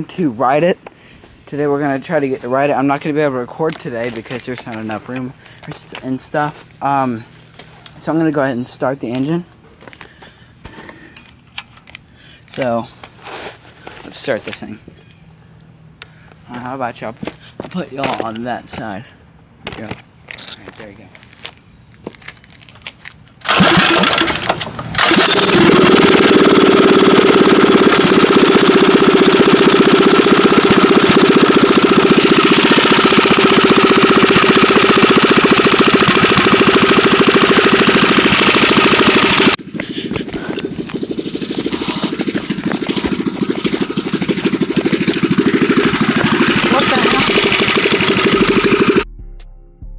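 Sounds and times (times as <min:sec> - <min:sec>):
loud engine starting and running: 0:23.4 - 0:49.1.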